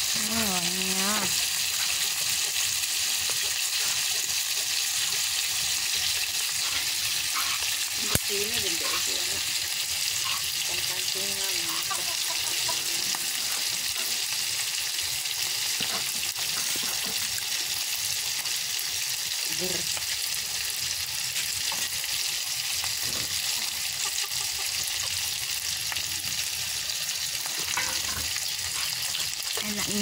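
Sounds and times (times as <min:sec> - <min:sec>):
shrimp frying in hot oil: 0:00.0 - 0:30.0.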